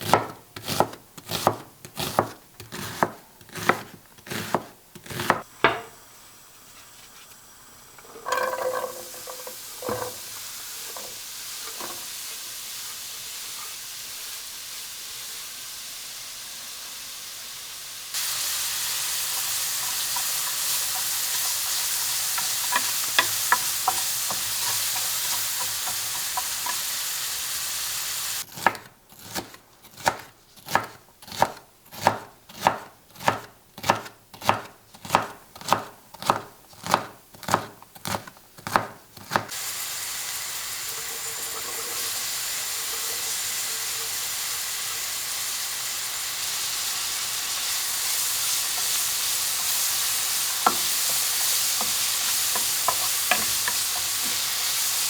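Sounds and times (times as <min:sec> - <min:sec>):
knife chopping on cutting board: 0:00.0 - 0:05.9, 0:28.5 - 0:39.5, 0:50.6 - 0:54.5
food sizzling in a pan: 0:05.4 - 0:28.5, 0:39.4 - 0:55.0.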